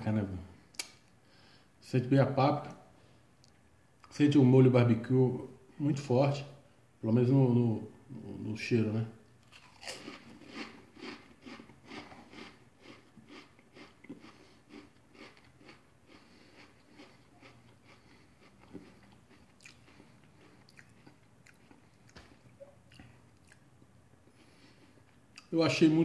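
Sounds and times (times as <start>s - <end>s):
chewing crisps: 9.4s - 23.6s.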